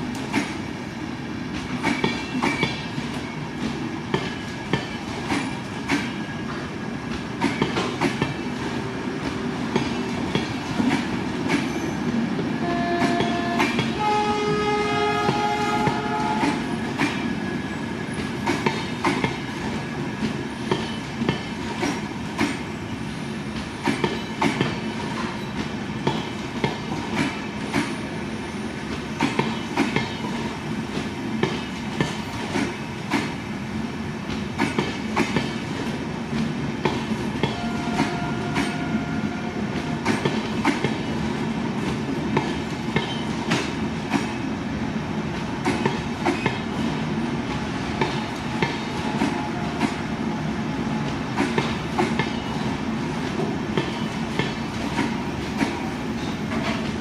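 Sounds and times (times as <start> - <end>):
train coaches rushing past: 0.0 - 57.0.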